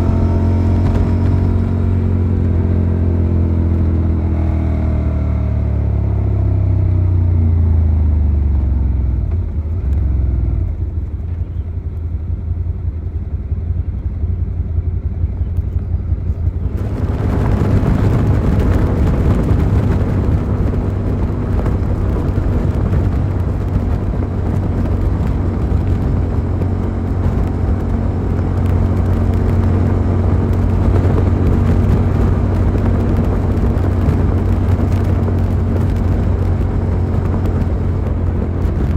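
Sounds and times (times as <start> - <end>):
motorcycle engine: 0.0 - 38.9
wind and road noise: 0.0 - 38.9.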